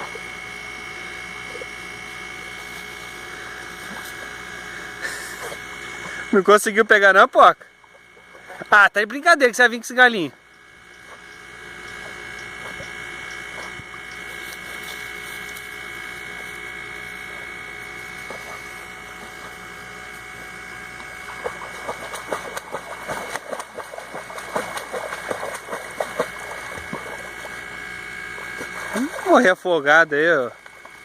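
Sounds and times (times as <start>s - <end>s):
high-pitched hum: 0.0s - 31.0s
dog splashing in water: 21.3s - 27.7s.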